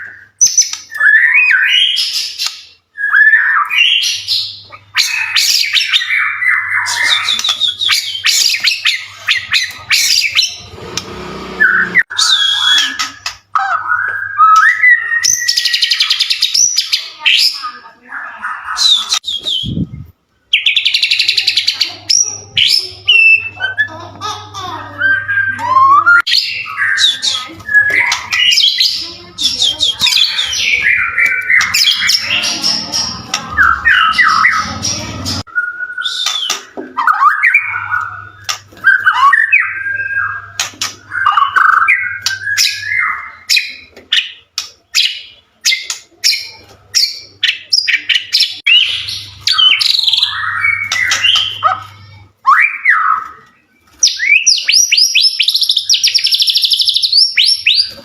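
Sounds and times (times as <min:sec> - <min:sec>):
bird singing whistles and trills: 0:00.0 - 0:10.7, 0:11.6 - 0:17.0, 0:18.7 - 0:21.4, 0:35.4 - 0:44.4, 0:45.0 - 0:58.0.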